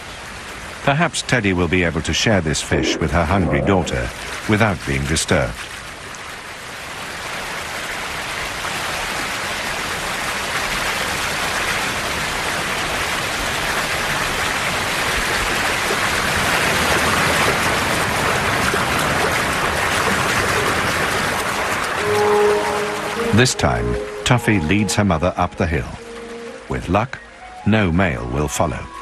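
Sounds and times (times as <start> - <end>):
rushing river water: 0.0 - 29.0.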